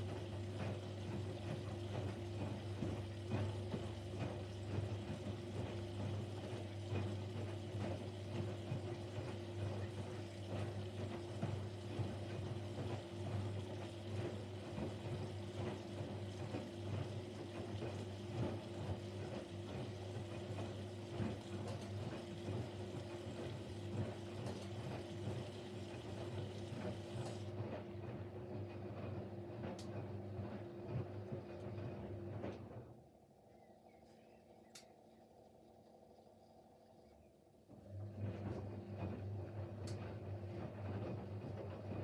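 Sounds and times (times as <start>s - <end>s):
washing machine hum: 0.0s - 42.0s
small ticks: 34.0s - 35.2s.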